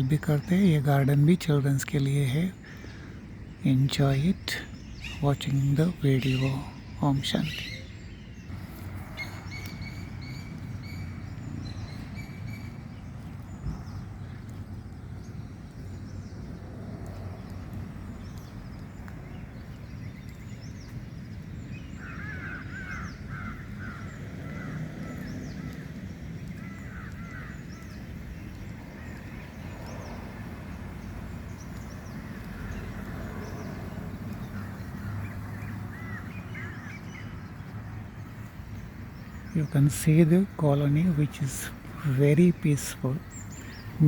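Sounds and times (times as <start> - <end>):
birds chirping: 0.0 - 44.0
steady low rumble: 8.0 - 22.1.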